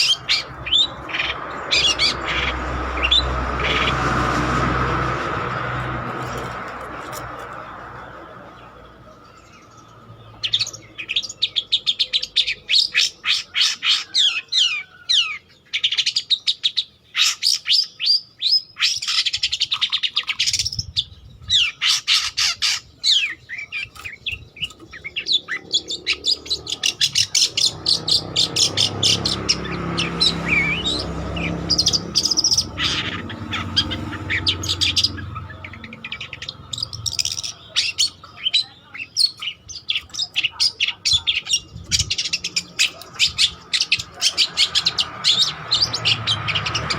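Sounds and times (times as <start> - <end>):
bird chattering song: 0.0 - 46.9.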